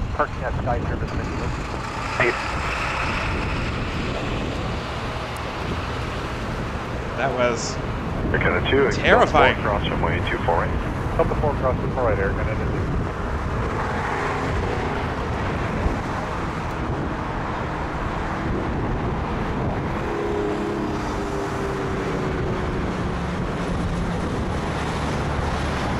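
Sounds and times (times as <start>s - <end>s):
jet engines running: 0.0s - 25.9s
wind buffeting microphone: 0.0s - 25.9s.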